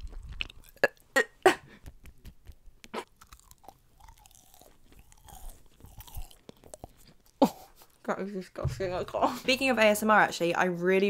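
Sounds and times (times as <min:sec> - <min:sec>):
person chewing crunchy food: 0:00.0 - 0:08.0.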